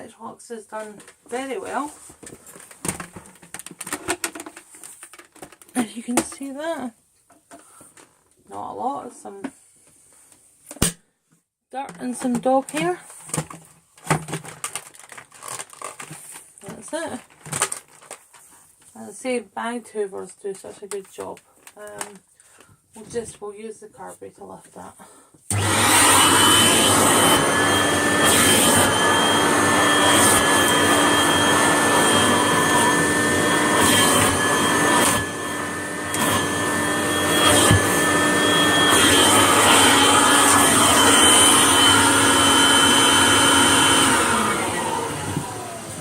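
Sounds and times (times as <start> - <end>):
vacuum cleaner motor whining: 25.5 - 46.0.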